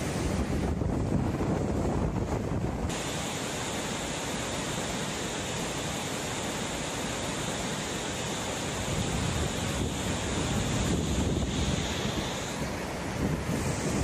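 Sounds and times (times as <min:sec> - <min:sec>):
low wind rumble on microphone: 0:00.0 - 0:03.0, 0:08.8 - 0:14.0
storm wind and water hiss: 0:00.0 - 0:14.0.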